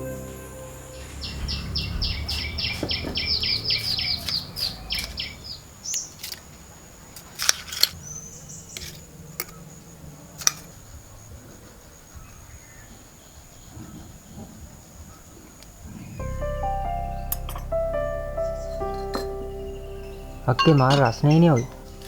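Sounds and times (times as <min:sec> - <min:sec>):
bird chirping: 0:00.0 - 0:07.0, 0:07.9 - 0:10.0, 0:15.0 - 0:22.0
thin high-pitched tone: 0:20.4 - 0:22.0.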